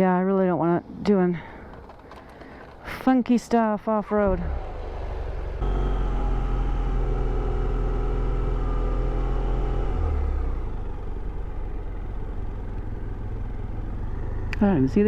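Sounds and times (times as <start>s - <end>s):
motorcycle engine running: 4.1s - 15.0s.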